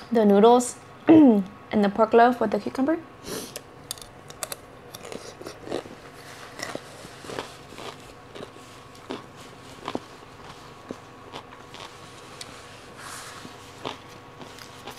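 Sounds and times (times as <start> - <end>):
crunchy chewing: 3.9 - 12.6, 13.4 - 14.9.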